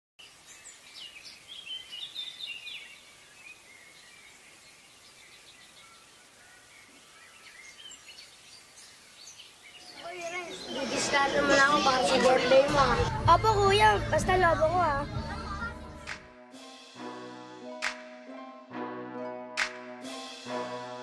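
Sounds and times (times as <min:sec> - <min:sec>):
low hiss: 0:00.2 - 0:11.2
birds chirping faintly: 0:00.2 - 0:12.6.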